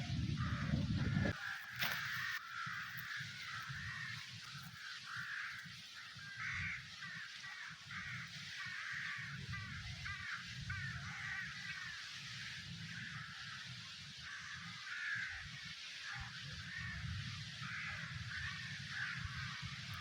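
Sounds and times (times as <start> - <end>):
low unsteady rumbling: 0.0 - 4.1
flock of birds chattering: 0.0 - 20.0.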